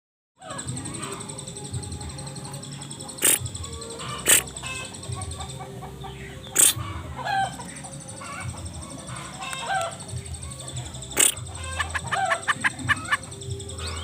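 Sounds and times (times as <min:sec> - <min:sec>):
hen clucking: 0:02.8 - 0:10.2, 0:10.9 - 0:14.0.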